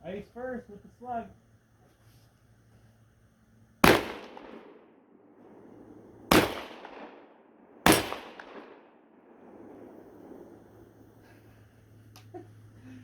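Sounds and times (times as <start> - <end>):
shotgun shots with echo: 3.8 - 4.9, 6.3 - 9.9.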